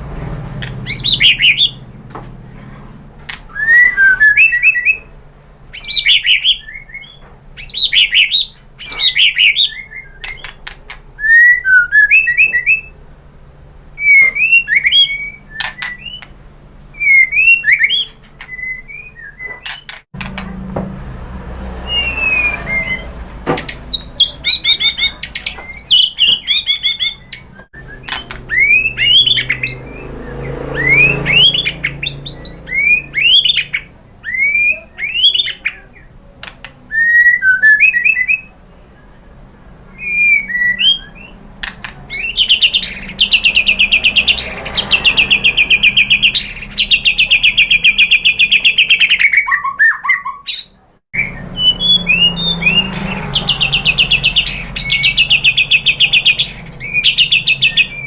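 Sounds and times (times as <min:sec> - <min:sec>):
bird singing whistled phrases: 0:00.8 - 0:01.8, 0:03.5 - 0:05.1, 0:05.7 - 0:10.6, 0:11.2 - 0:13.0, 0:14.0 - 0:16.3, 0:17.0 - 0:20.0, 0:21.8 - 0:36.1, 0:36.9 - 0:38.6, 0:39.9 - 0:41.4, 0:42.1 - 0:58.0.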